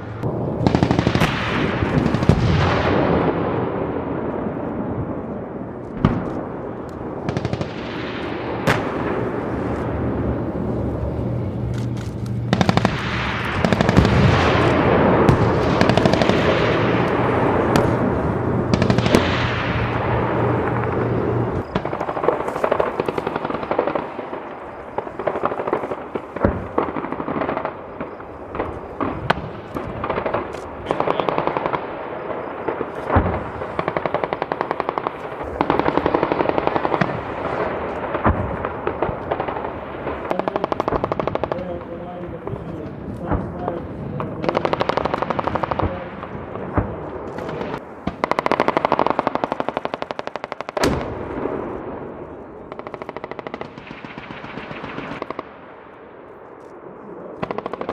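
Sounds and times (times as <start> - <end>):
steady low drone: 0.0 - 25.2.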